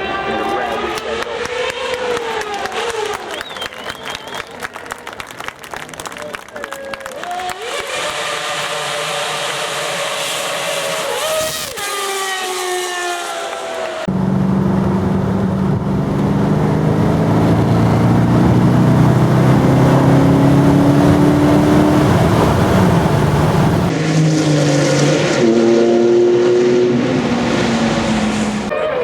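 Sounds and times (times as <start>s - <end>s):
supercar engine accelerating: 7.4s - 28.7s
another engine running: 14.0s - 24.2s.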